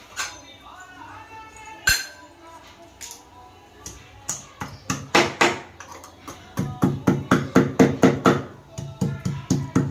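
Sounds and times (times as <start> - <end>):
pestle pounding in a mortar: 6.6 - 9.9.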